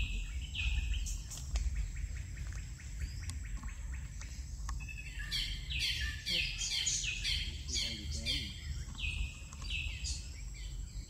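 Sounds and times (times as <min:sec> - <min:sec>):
bird ticking notes: 0:00.0 - 0:10.9
loud falling bird calls: 0:00.0 - 0:11.0.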